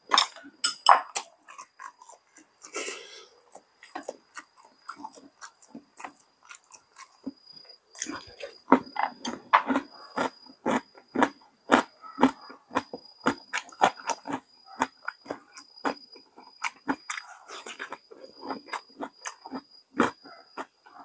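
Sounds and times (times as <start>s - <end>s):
person chewing food: 0.0s - 21.0s.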